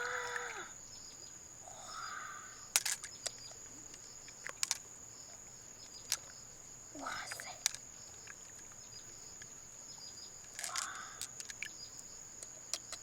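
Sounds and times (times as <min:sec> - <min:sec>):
clicks and taps of hard objects: 0:07.2 - 0:08.7, 0:10.4 - 0:11.7.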